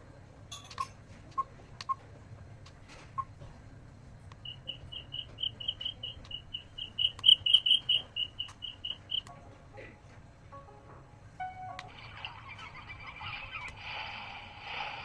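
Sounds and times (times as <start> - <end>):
sharp clicks: 4.3 - 9.3.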